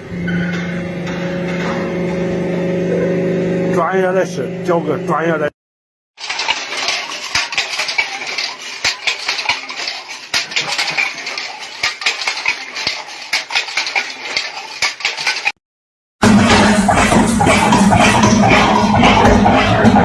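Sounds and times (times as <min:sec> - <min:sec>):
small hard objects clattering: 0:06.2 - 0:15.6.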